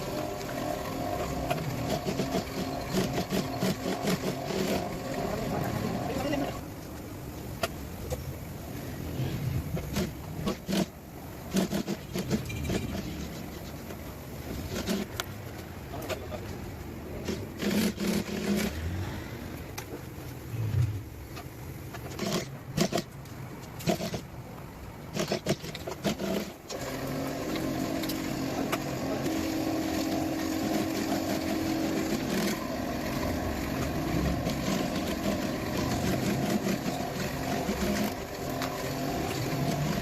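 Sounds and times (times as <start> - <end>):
steady motor hum: 0.0 - 15.3, 26.1 - 40.0
upholstery tools knocking and clicking: 25.1 - 26.6.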